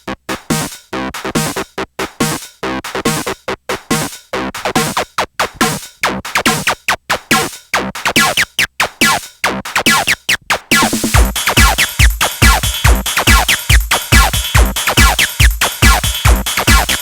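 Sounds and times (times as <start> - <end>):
chopped techno synth stabs: 4.4 - 17.0.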